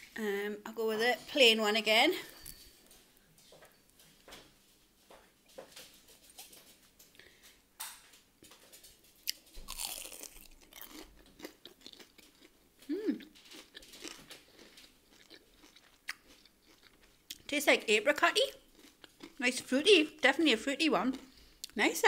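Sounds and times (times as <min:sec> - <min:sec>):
chewing and crunching food: 0:08.4 - 0:21.8.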